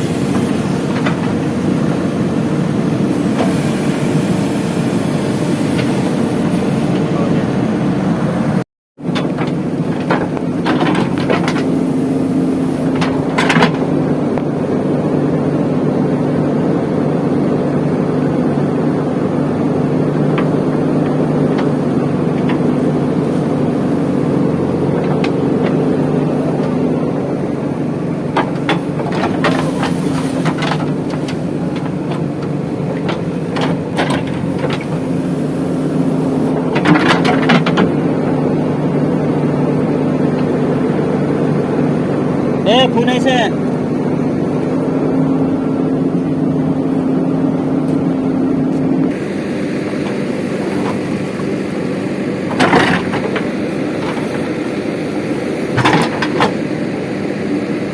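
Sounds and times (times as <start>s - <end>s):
diesel engine running: 0.0s - 57.9s
machine knocks and clatter: 9.1s - 11.8s, 12.9s - 13.9s, 28.3s - 35.1s.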